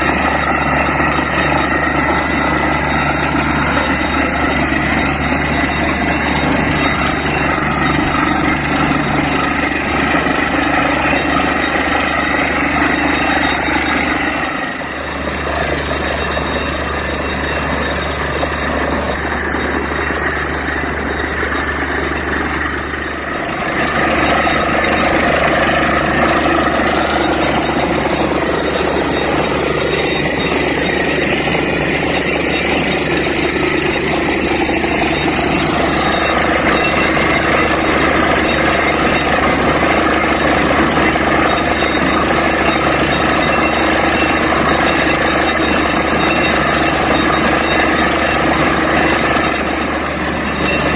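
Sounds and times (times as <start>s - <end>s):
drilling rig engine roaring: 0.0s - 50.9s.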